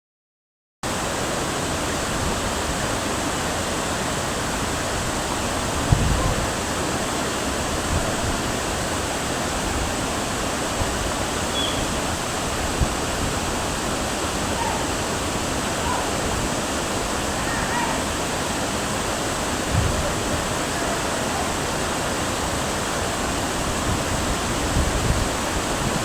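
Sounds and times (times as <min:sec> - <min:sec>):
waterfall rushing: 0:00.9 - 0:26.0
low thump: 0:19.7 - 0:20.2.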